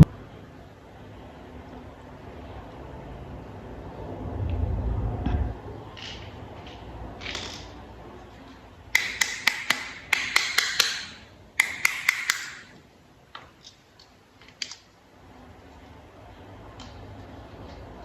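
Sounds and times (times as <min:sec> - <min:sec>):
toy parts clicking and rattling: 0:07.2 - 0:07.7, 0:09.0 - 0:12.8.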